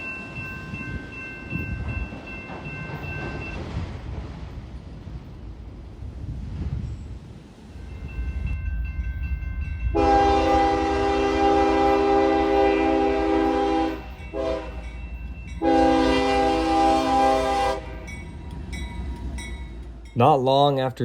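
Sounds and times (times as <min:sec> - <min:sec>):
low rumble of train: 0:00.0 - 0:21.0
locomotive air horn blasts: 0:09.9 - 0:14.8, 0:15.6 - 0:18.1.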